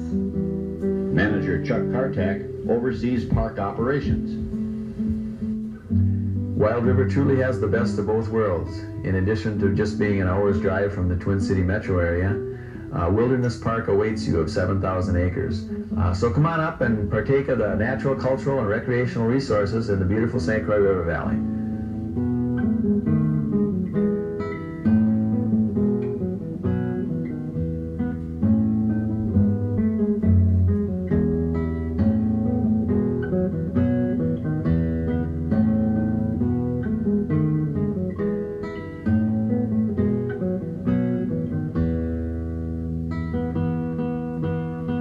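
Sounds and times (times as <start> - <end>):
acoustic guitar music: 0.0 - 45.0
steady bass: 0.0 - 45.0.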